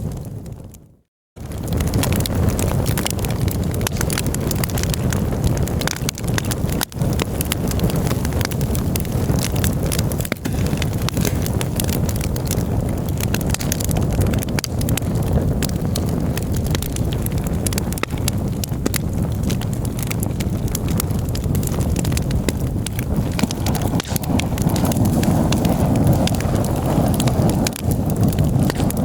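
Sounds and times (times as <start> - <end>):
low fire rumble: 0.0 - 29.0
wood crackling and popping: 0.0 - 29.0.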